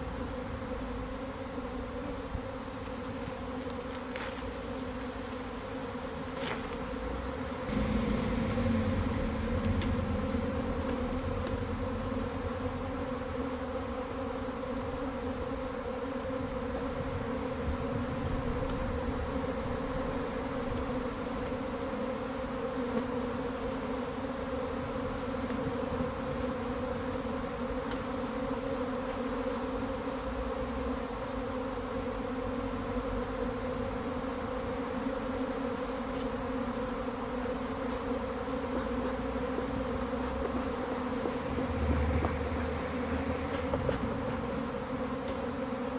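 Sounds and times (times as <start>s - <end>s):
honeybees buzzing: 0.0s - 45.9s.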